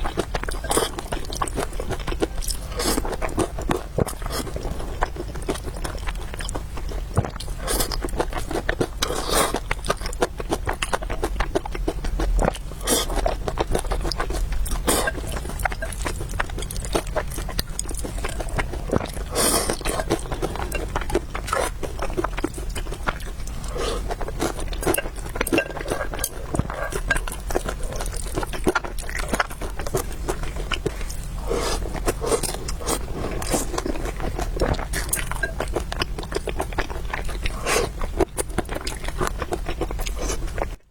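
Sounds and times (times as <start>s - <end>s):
person chewing food: 0.0s - 40.9s
slurping: 14.0s - 22.5s, 23.1s - 35.8s.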